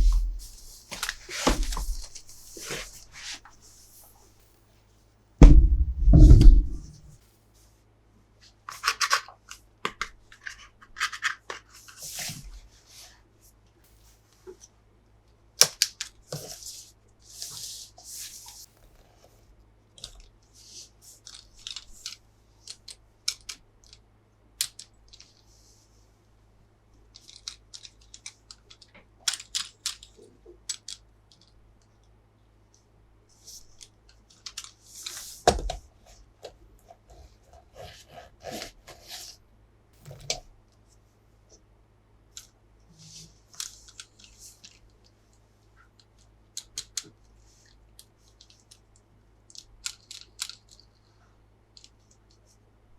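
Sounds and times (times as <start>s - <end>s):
loud knock: 0.0s - 0.4s, 5.4s - 7.1s.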